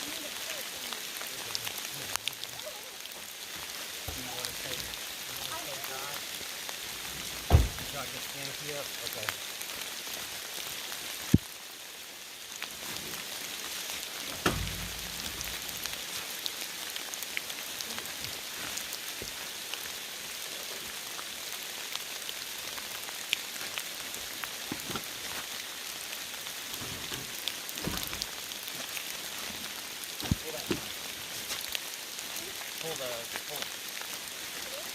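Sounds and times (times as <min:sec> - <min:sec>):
heavy rain hissing: 0:00.0 - 0:34.9
thump: 0:07.5 - 0:07.9, 0:14.4 - 0:15.3.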